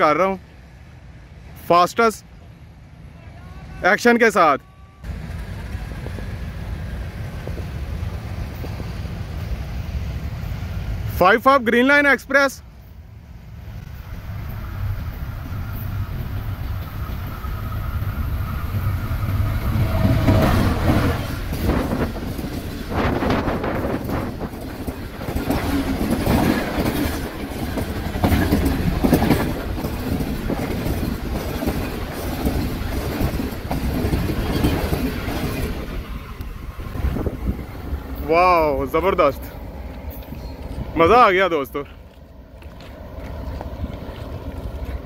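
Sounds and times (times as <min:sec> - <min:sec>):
train passing at speed: 0:00.0 - 0:45.0
wheels clattering over rail joints: 0:14.4 - 0:45.0.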